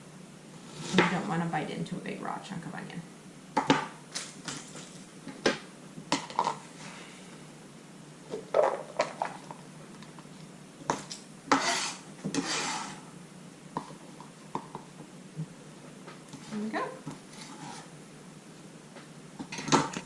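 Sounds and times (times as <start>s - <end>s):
knife scraping: 11.1s - 13.0s, 17.3s - 17.9s.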